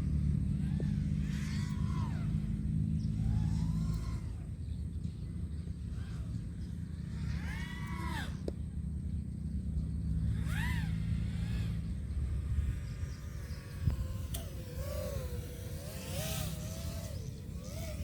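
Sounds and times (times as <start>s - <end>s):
drone motors whining: 0.0s - 18.0s
wind on microphone: 11.6s - 18.0s.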